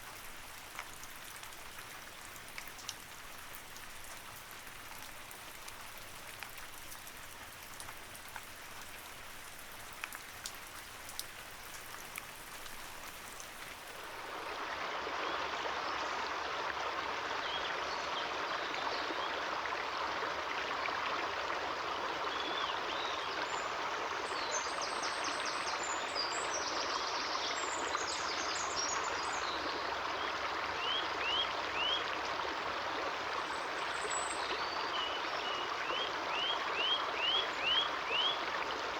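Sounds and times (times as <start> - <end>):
rain falling: 0.0 - 15.2
stream running: 0.0 - 38.9.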